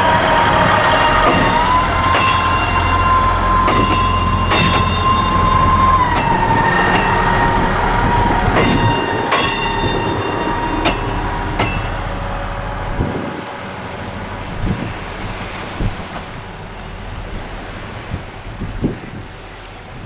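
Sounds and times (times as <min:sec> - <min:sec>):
wheels clicking over rail joints: 0:00.0 - 0:18.6
train whine passing: 0:00.0 - 0:20.0
wind buffeting microphone: 0:00.0 - 0:20.0.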